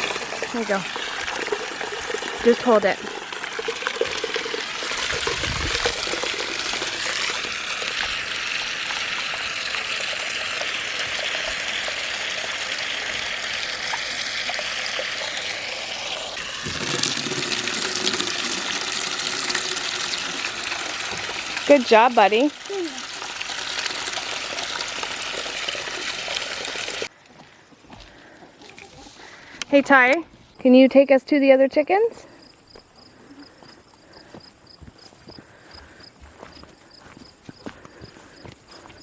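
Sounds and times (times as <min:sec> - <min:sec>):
hose water splashing into container: 0:00.0 - 0:27.1.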